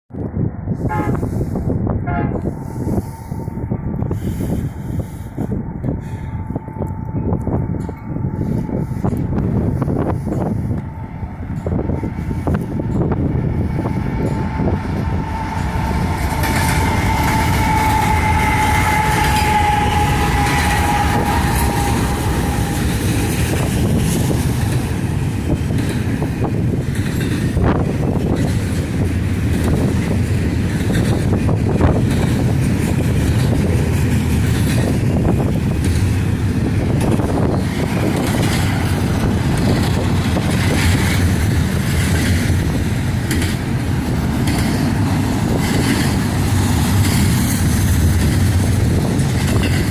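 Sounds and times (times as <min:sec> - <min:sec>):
freight train rumbling: 0:00.0 - 0:49.9
wind noise: 0:00.1 - 0:49.9
high steady tone: 0:02.1 - 0:26.7.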